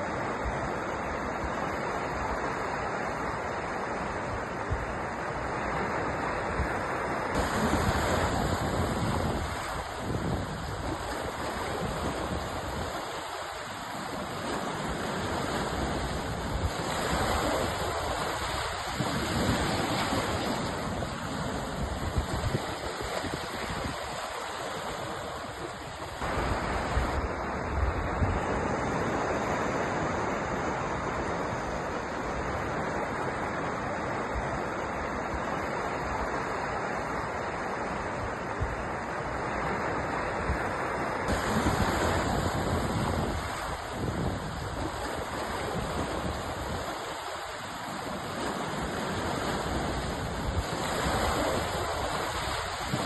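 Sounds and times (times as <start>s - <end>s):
sea surf washing in: 0.0s - 53.0s.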